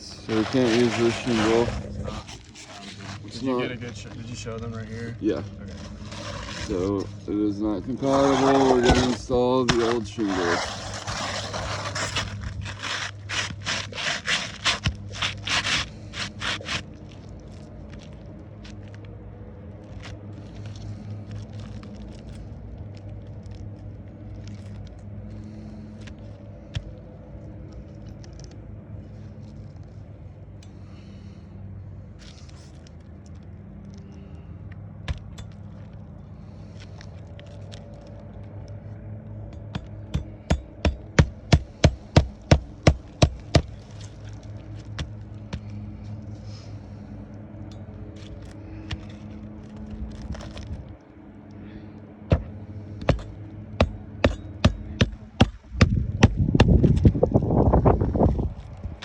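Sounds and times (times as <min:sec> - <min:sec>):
steady low hum: 0:00.0 - 0:59.0
clicks and scrapes: 0:00.1 - 0:03.4, 0:05.6 - 0:07.2, 0:08.0 - 0:17.0.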